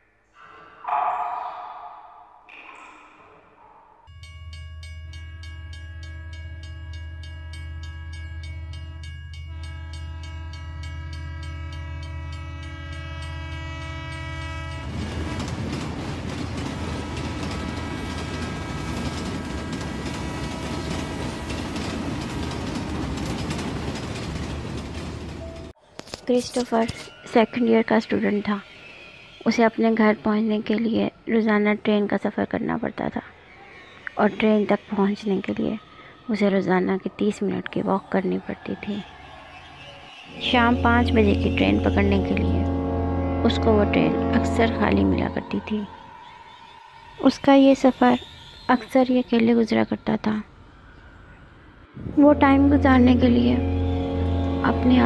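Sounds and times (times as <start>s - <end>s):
train rumbling on rails: 0.4s - 25.8s, 27.0s - 55.0s
train horn: 5.8s - 24.0s, 39.2s - 49.6s, 52.0s - 55.0s.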